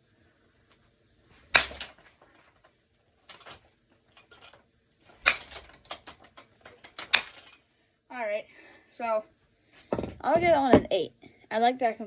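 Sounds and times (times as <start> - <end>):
bat cracking baseball: 1.4 - 2.0.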